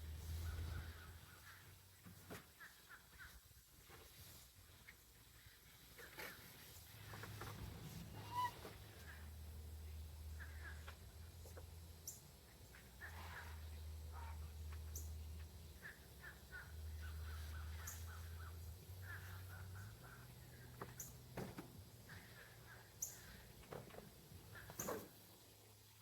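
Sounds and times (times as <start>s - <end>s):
low steady hum: 0.0s - 26.0s
faint bird calls: 8.1s - 9.2s.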